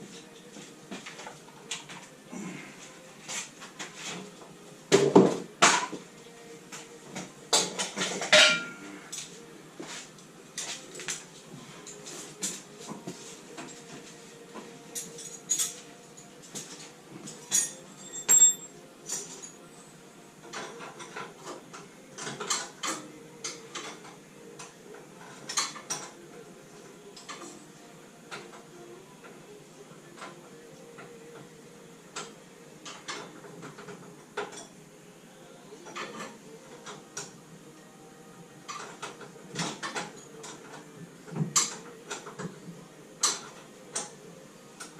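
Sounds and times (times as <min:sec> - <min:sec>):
ringing metal clang: 0:08.3 - 0:08.8, 0:17.6 - 0:18.7
metal tools clinking: 0:17.4 - 0:19.6.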